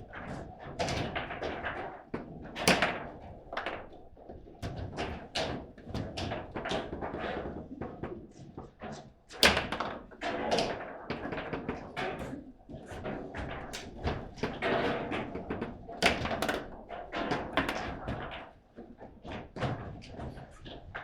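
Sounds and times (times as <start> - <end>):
ball cracking against foosball figures: 2.5 - 4.0, 4.7 - 20.4
foosball rods clacking and thudding: 9.3 - 18.5.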